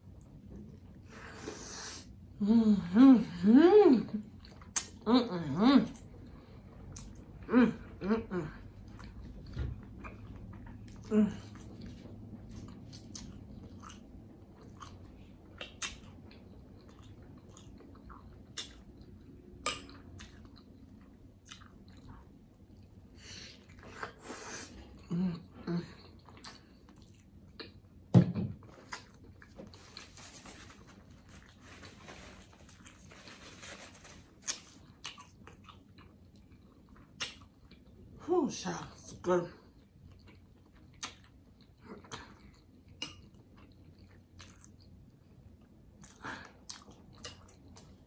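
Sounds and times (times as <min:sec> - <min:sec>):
wet chewing and mouth smacks: 0:08.8 - 0:24.2, 0:26.1 - 0:28.0, 0:34.4 - 0:38.0, 0:39.8 - 0:48.0.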